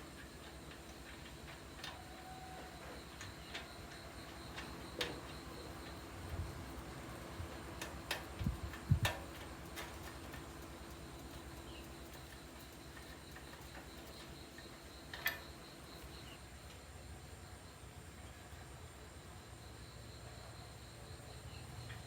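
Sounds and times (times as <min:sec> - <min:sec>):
faint steady hum: 0:00.0 - 0:22.0
light clicks and taps: 0:07.8 - 0:15.5.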